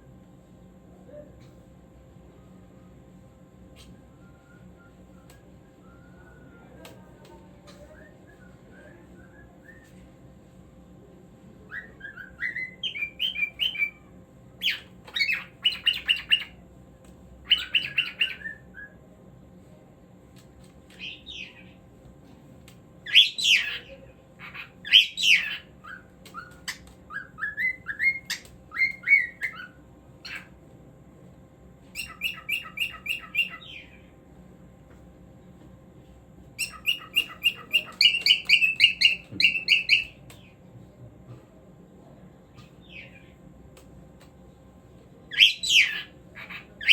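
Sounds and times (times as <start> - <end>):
cockatiel whistling and chirping: 11.7 - 14.0, 14.6 - 16.5, 17.5 - 19.0, 24.5 - 30.5, 32.0 - 34.0, 36.6 - 40.2, 45.3 - 46.9.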